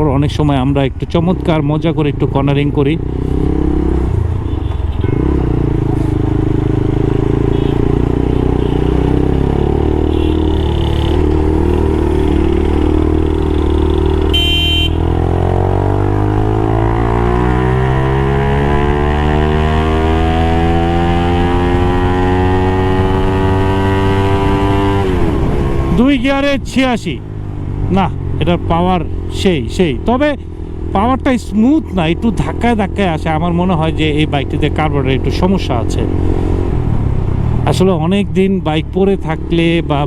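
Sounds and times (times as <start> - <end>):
motorcycle engine running: 2.0 - 40.0
short horn beep: 4.4 - 5.4, 14.3 - 15.0.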